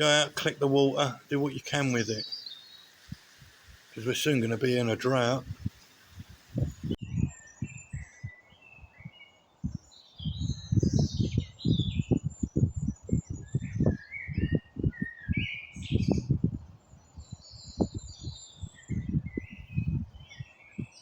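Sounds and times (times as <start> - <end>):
birds singing and chirping: 0.0 - 21.0.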